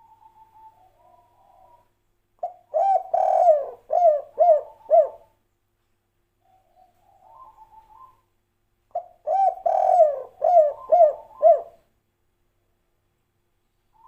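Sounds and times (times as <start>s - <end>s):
dove cooing: 0.0s - 5.3s, 6.4s - 8.2s, 8.9s - 11.9s.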